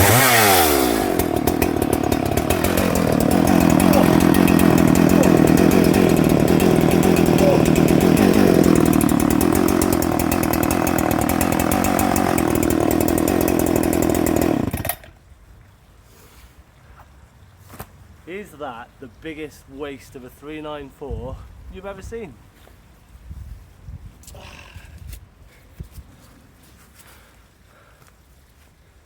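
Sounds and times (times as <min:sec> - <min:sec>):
chainsaw cutting brush: 0:00.0 - 0:15.2.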